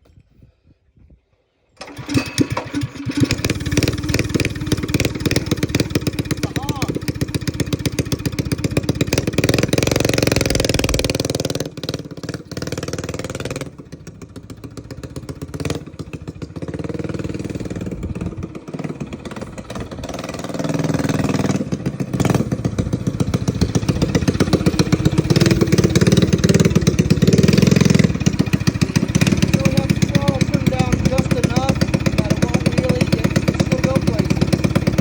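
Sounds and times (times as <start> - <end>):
mini bike engine running: 1.8 - 35.0.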